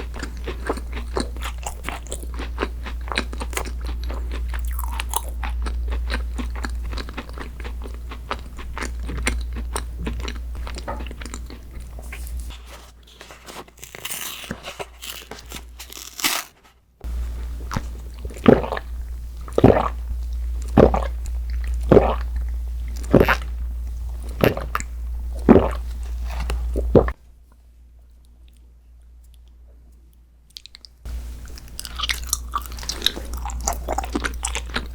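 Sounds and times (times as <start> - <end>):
loud bites and chews: 0.0 - 12.3, 30.5 - 34.9
crunchy food chewing: 0.0 - 27.2, 30.5 - 34.9.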